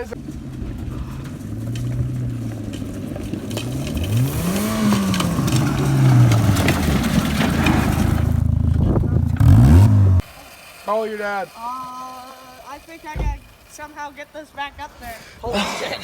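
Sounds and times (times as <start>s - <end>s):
car engine revving: 0.0s - 14.8s
scattered knocks: 12.8s - 13.8s.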